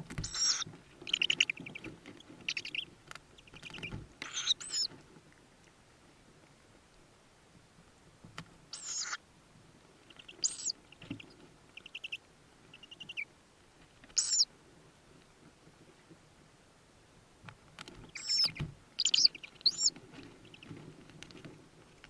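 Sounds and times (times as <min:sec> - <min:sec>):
owl chicks begging calls: 0:00.2 - 0:04.9, 0:08.7 - 0:09.2, 0:10.1 - 0:13.3, 0:14.1 - 0:14.5, 0:18.1 - 0:20.7.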